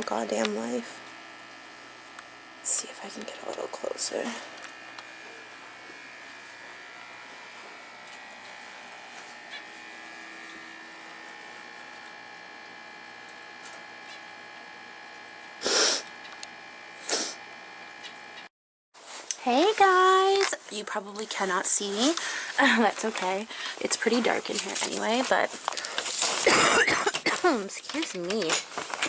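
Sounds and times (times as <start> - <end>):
electrical hum: 0.0 - 18.5, 19.2 - 29.0
loud hissing bursts: 15.6 - 16.2, 17.0 - 17.4.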